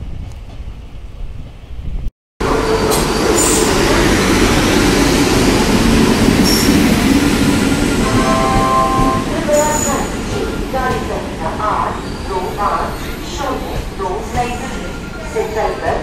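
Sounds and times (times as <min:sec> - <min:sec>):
wind on the microphone: 0:00.0 - 0:02.1
distant train: 0:00.0 - 0:16.0
passenger train rumbling past: 0:00.0 - 0:16.0.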